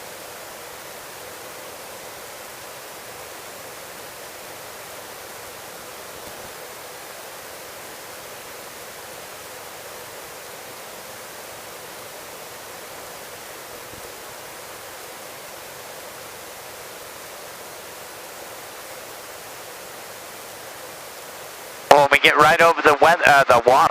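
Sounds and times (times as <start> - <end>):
helicopter cabin hiss: 10.2 - 23.9.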